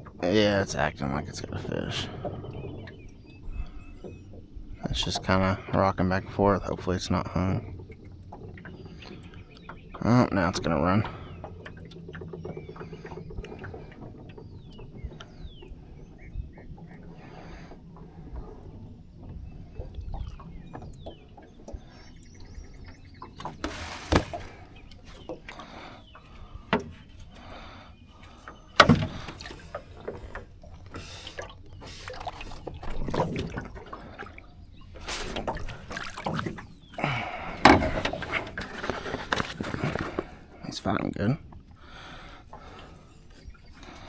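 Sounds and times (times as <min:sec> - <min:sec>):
water splashing beside boat: 0:00.0 - 0:44.0
knocks against boat: 0:23.4 - 0:25.5, 0:28.7 - 0:30.4, 0:35.0 - 0:40.3.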